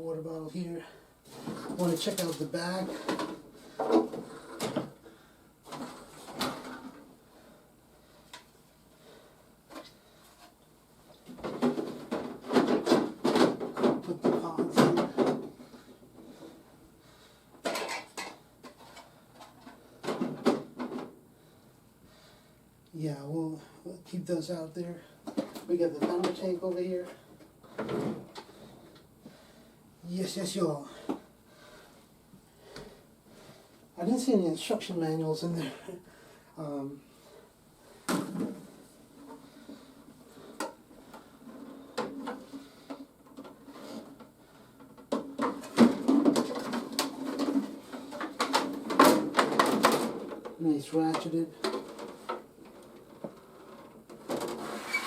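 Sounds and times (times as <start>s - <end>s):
plastic toy parts knocking and clicking: 45.0s - 52.9s.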